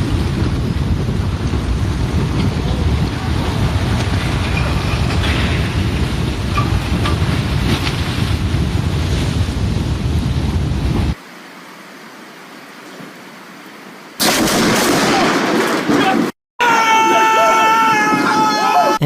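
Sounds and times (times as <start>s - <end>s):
mudslide rumbling rush: 0.0s - 11.2s
wind noise on microphone: 0.0s - 11.2s.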